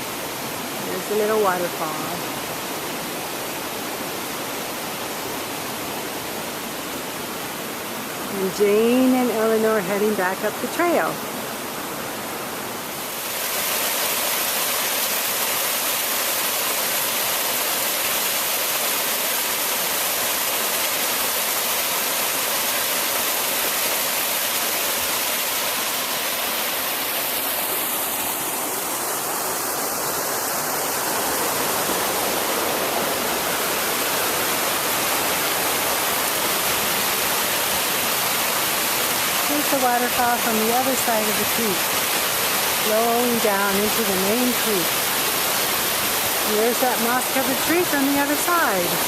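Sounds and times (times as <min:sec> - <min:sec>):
waterfall and stream rushing: 0:00.0 - 0:49.0.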